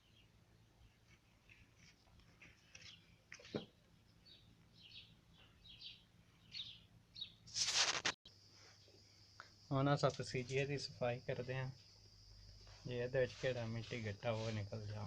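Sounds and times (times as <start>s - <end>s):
faint bird chirps: 0.0s - 7.4s.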